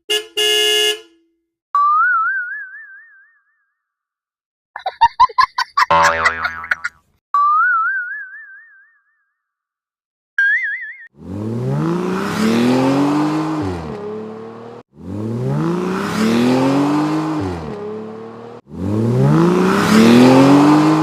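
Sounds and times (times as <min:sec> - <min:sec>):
car engine revving: 0:11.2 - 0:21.0.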